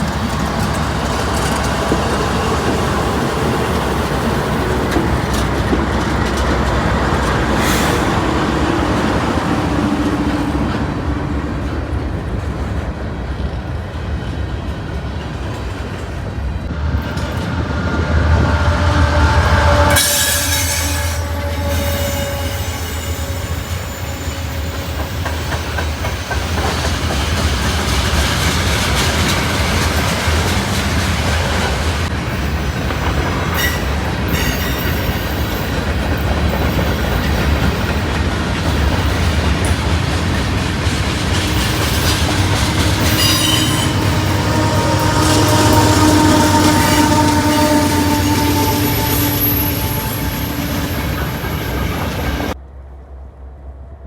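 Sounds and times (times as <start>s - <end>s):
wheels clattering on rails: 0.0s - 18.5s, 19.4s - 52.6s
train passing rumble: 0.0s - 54.0s
wheel squeal: 41.4s - 52.6s.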